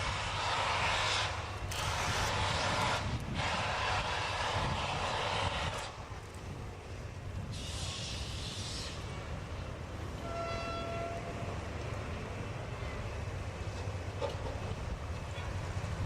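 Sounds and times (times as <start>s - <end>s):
steam hiss: 0.0s - 6.2s, 7.4s - 9.7s
steam locomotive rumbling: 0.0s - 16.0s
locomotive whistle blast: 10.2s - 11.4s.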